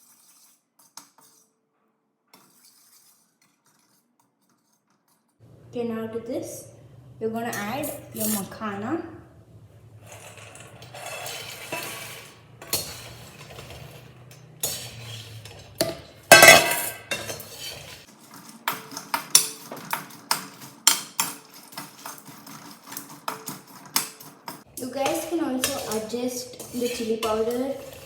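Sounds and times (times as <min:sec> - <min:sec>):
metal spoon scraping pan: 0:00.0 - 0:01.6, 0:02.3 - 0:05.4, 0:07.4 - 0:08.6, 0:10.0 - 0:28.0
nuts rattling into metal pan: 0:10.0 - 0:14.1, 0:16.3 - 0:24.8.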